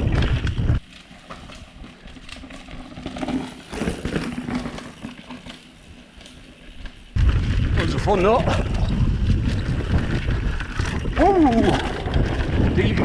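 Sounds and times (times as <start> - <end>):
wind on camera: 0.0 - 0.8, 7.1 - 13.0
bike rattling over ground: 0.0 - 13.0.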